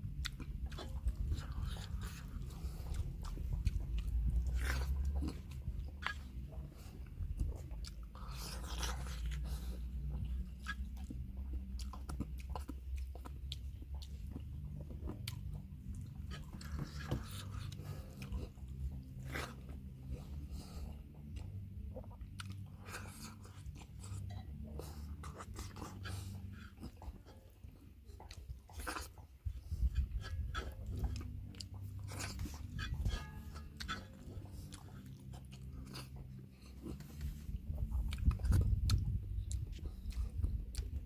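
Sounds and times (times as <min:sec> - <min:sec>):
person chewing food: 0:00.0 - 0:41.0
steady low hum: 0:00.0 - 0:41.0
wet mouth clicks: 0:28.2 - 0:41.0.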